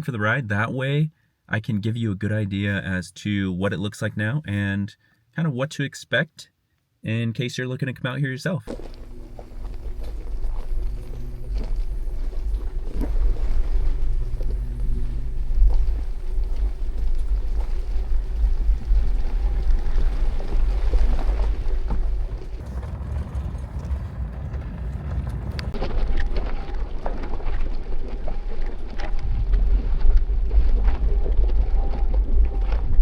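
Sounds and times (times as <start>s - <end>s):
vehicle engine rumble: 8.7s - 33.0s.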